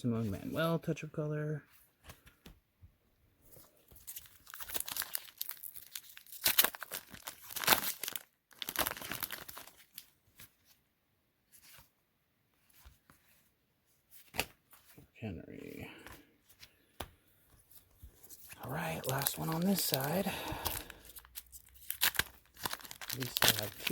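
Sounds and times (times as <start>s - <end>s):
plastic wrapper tearing and crinkling: 3.9s - 10.1s, 18.5s - 23.9s.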